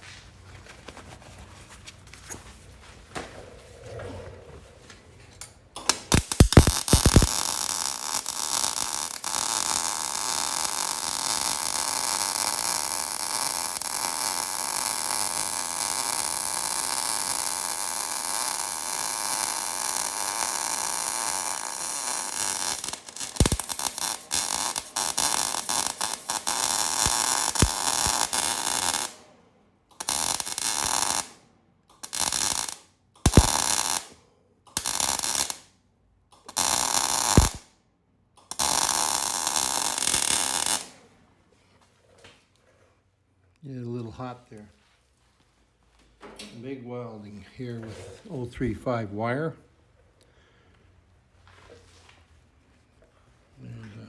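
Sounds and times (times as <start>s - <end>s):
sharp pops: 5.8s - 10.4s, 21.8s - 29.2s, 31.9s - 34.1s, 36.4s - 37.6s
welding arc crackling: 5.8s - 29.2s, 29.9s - 35.7s, 36.4s - 37.6s, 38.4s - 41.0s.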